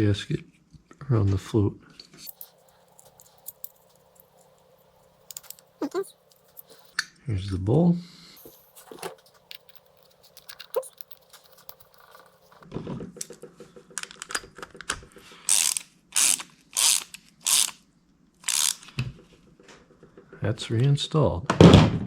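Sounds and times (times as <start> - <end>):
ratchet wrench clicking: 15.5 - 17.8, 18.4 - 18.9.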